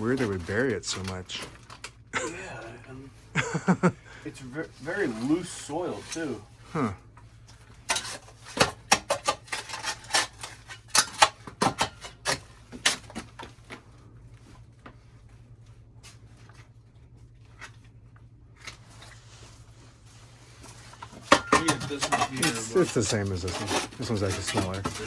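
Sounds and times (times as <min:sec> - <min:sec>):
shovel scraping loose soil: 0:21.7 - 0:25.0.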